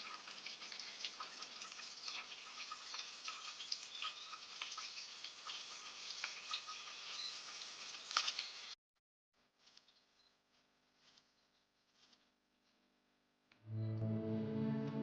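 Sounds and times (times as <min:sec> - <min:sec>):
quick ticks and pattering: 0:00.0 - 0:08.8
small birds chirping: 0:02.6 - 0:08.7.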